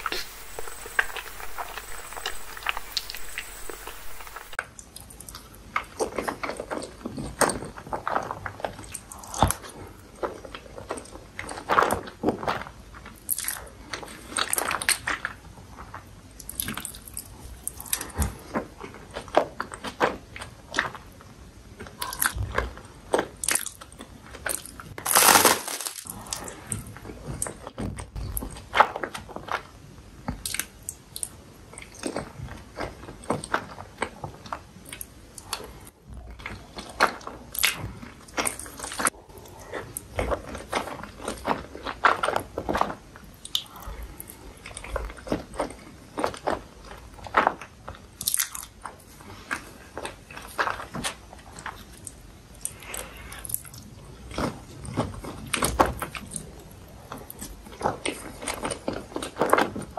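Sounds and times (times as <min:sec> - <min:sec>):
crunchy bite: 0:00.0 - 0:04.6, 0:24.6 - 0:26.5
wet chewing and slurping: 0:00.0 - 0:21.0, 0:30.4 - 0:59.9.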